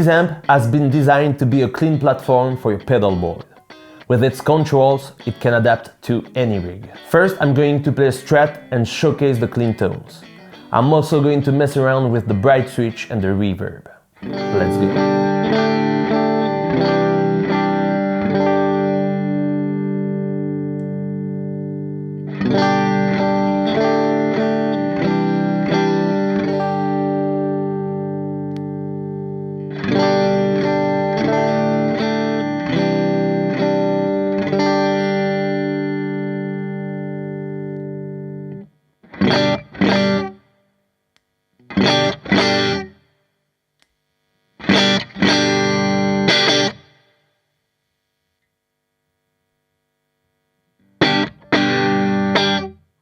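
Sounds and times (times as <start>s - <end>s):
clean electric guitar chords: 0.0s - 13.4s, 14.2s - 40.4s, 41.6s - 43.0s, 44.6s - 47.0s, 50.8s - 52.8s.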